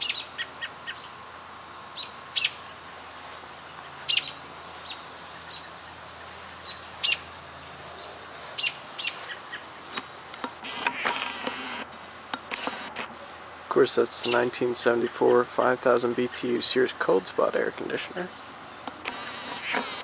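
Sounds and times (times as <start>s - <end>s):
bird chirping: 0.0s - 1.2s, 1.8s - 3.0s, 3.6s - 10.0s, 14.2s - 14.6s, 18.3s - 19.0s
faint steady hum: 0.0s - 20.0s.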